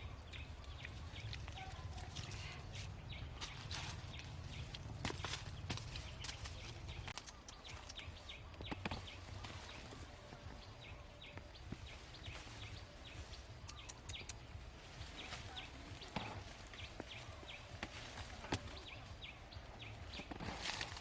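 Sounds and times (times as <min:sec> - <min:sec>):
sharp clicks: 0:07.0 - 0:08.1, 0:13.6 - 0:14.5
small animal chirping: 0:13.6 - 0:14.6.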